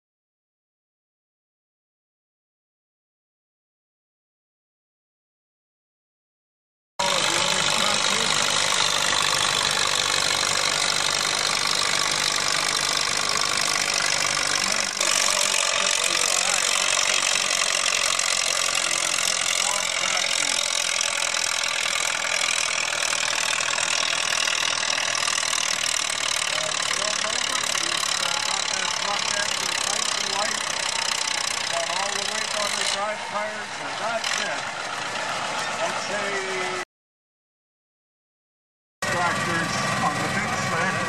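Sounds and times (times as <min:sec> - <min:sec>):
voices: 0:07.0 - 0:21.3, 0:26.4 - 0:36.8, 0:39.0 - 0:41.0
tractor engine running: 0:07.0 - 0:36.8, 0:39.0 - 0:41.0.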